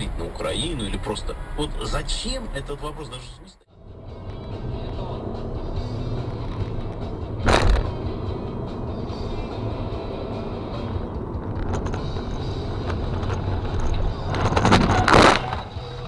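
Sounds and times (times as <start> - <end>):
car road rumble: 0.0 - 16.0
loud bursts of noise: 7.4 - 8.0.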